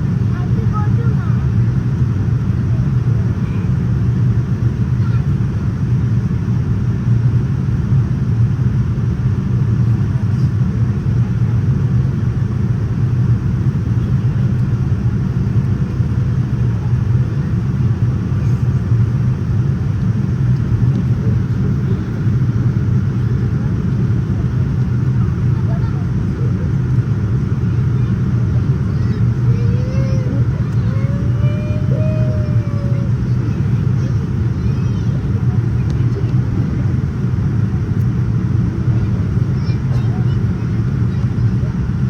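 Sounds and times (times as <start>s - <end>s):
airplane cabin engine rumble: 0.0s - 42.0s.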